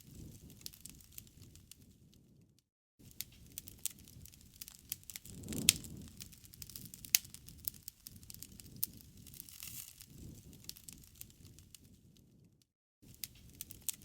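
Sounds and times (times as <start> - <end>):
wood fire crackling: 0.0 - 2.4, 3.0 - 14.0
flames rushing: 0.1 - 1.6, 3.2 - 12.1.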